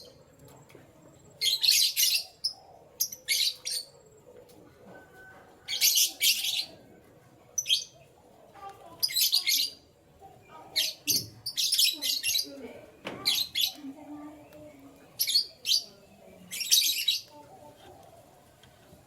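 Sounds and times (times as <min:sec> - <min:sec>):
canaries chirping: 0:01.3 - 0:04.2, 0:05.7 - 0:06.8, 0:08.8 - 0:18.2.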